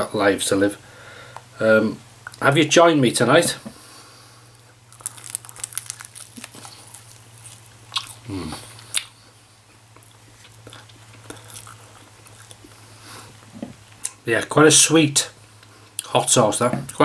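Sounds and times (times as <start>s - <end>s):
steady low hum: 0.0s - 17.0s
person chewing with wet clicks: 2.2s - 2.4s, 4.9s - 9.2s, 9.9s - 12.8s, 13.4s - 14.2s
man humming: 8.2s - 8.8s.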